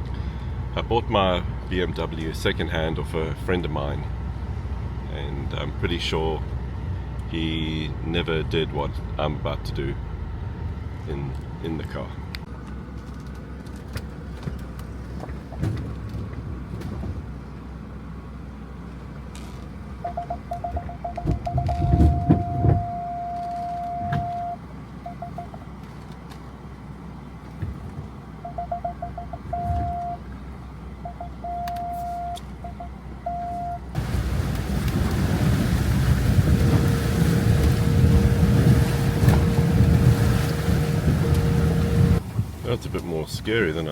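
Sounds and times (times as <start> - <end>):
low rumble of car creeping: 0.0 - 43.9
parking sensor beeping: 20.0 - 25.6, 28.4 - 30.2, 31.0 - 34.0.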